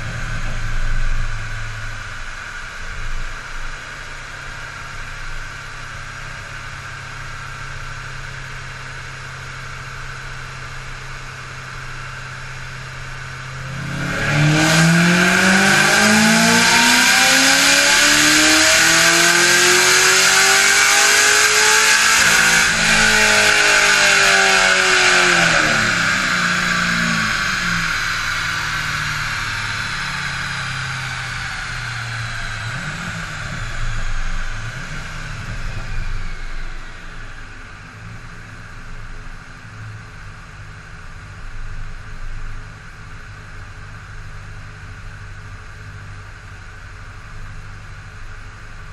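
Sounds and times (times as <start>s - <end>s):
supercharged car engine revving: 0.0s - 7.4s, 10.1s - 40.3s.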